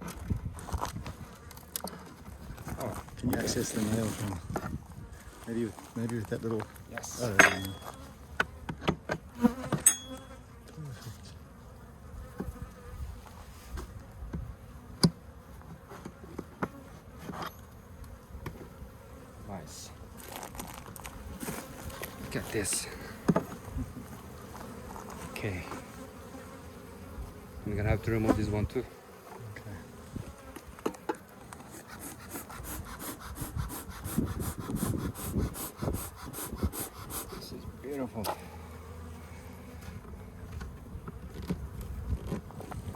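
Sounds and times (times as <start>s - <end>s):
bees buzzing: 11.4s - 42.9s
hand saw cutting wood: 31.5s - 37.6s.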